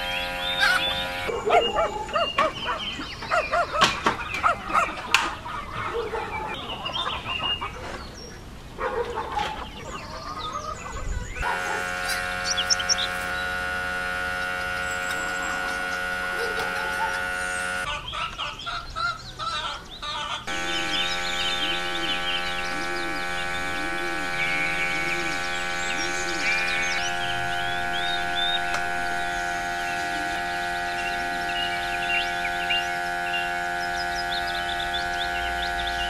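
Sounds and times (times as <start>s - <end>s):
electric motor hum: 0.0s - 5.3s, 11.3s - 17.9s, 20.5s - 36.0s
faint chirps: 11.4s - 17.9s, 20.5s - 36.0s.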